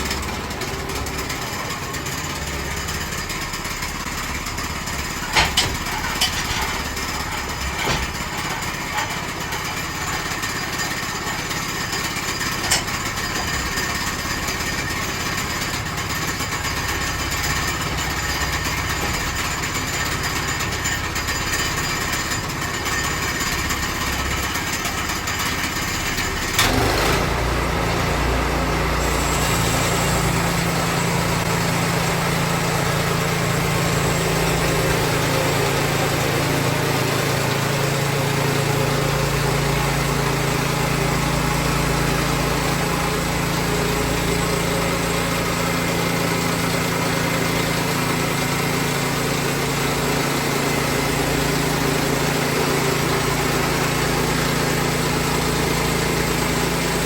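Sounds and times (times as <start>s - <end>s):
small gas engine running: 0.0s - 57.0s
bandsaw blade sawing log: 26.6s - 57.0s.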